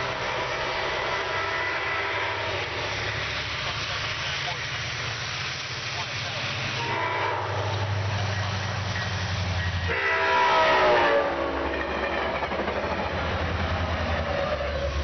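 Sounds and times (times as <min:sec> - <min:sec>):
locomotive horn: 0:00.0 - 0:03.0, 0:06.7 - 0:08.0, 0:09.8 - 0:11.7
diesel locomotive engine passing: 0:00.0 - 0:15.0
train coaches rumbling and clattering: 0:00.0 - 0:15.0.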